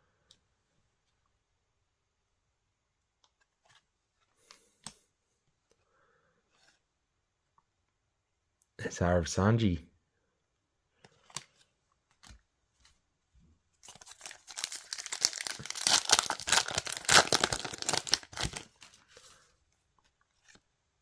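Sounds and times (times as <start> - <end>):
foil wrapper tearing and crinkling: 13.8 - 18.9.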